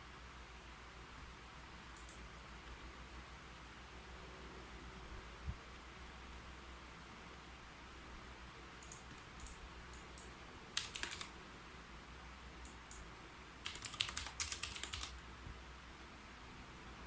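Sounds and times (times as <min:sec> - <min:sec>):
typing on a keyboard: 0:08.8 - 0:11.3, 0:12.7 - 0:15.2.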